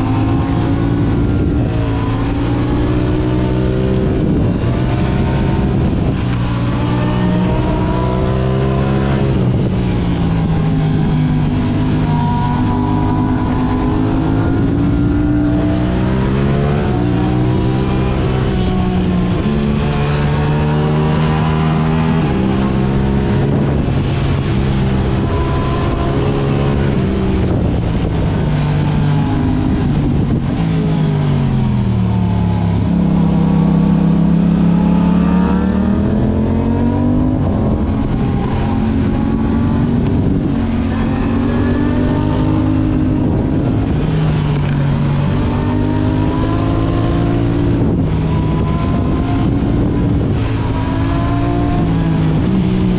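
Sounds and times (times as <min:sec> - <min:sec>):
sport bike engine revving: 0:00.0 - 0:52.9.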